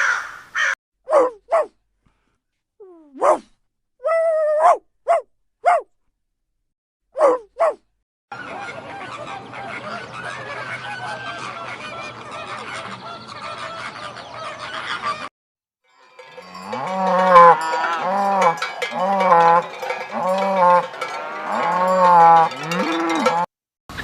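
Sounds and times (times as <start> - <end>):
farm animal calling: 16.2 - 23.5.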